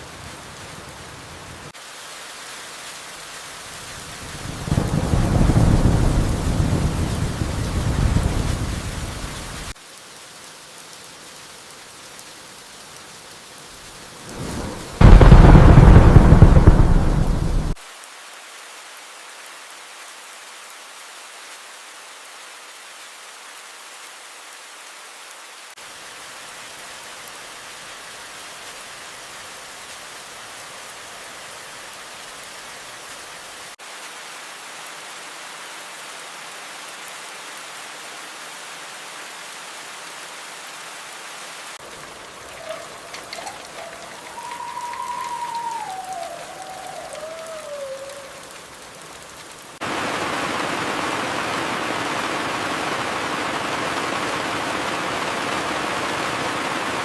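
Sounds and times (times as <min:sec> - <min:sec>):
steady rain falling: 0:00.0 - 0:57.0
thunderclap rumbling: 0:04.4 - 0:09.7, 0:14.3 - 0:17.8, 0:42.0 - 0:48.4, 0:49.8 - 0:57.0.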